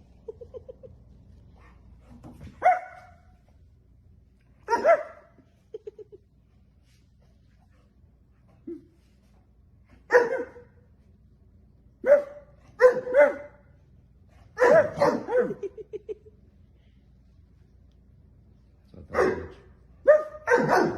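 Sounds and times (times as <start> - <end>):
dog barking: 2.6 - 3.2, 4.7 - 5.3, 10.1 - 10.7, 12.0 - 13.6, 14.6 - 15.6, 19.1 - 20.9
dog yipping: 4.7 - 5.2.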